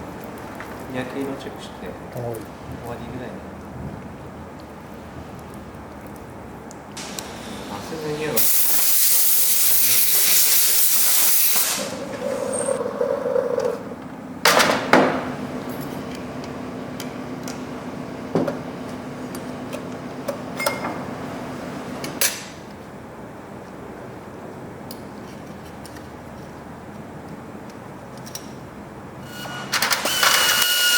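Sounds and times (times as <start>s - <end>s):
hiss of spray or blown air: 8.4s - 12.1s
machine hum: 11.2s - 22.0s.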